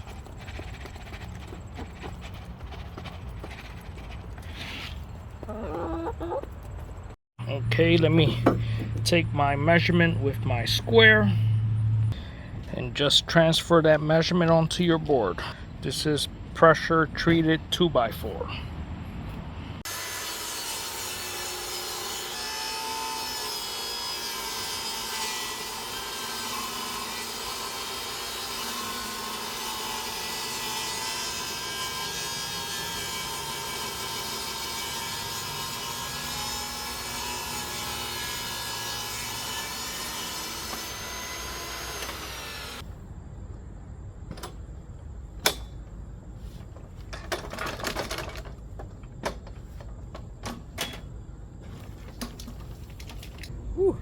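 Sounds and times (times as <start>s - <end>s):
power saw cutting wood: 19.8s - 42.8s.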